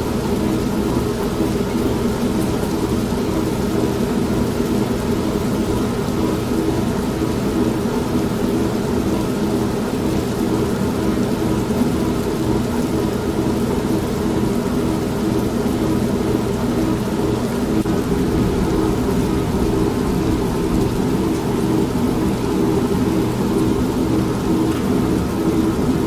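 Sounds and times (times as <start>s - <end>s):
steady rain: 0.0s - 26.0s
washing machine drone: 0.0s - 26.0s
thunder rumble: 17.9s - 23.7s.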